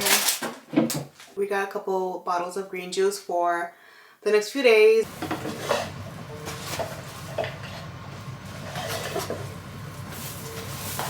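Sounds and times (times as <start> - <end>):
air conditioner hum: 5.0 - 11.0
groceries knocking and clinking: 5.1 - 11.0.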